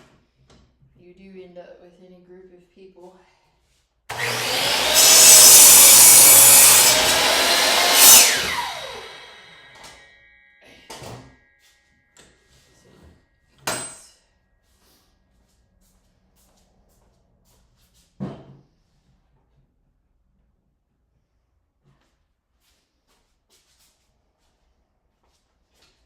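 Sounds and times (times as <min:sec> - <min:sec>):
miter saw cutting wood: 0:04.1 - 0:10.1.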